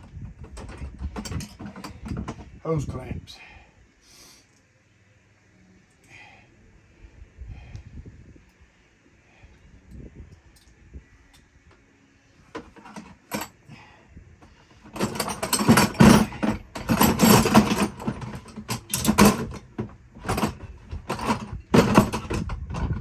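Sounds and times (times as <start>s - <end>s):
metallic clattering and rattling: 0.0s - 2.6s, 12.5s - 13.6s, 14.7s - 23.0s.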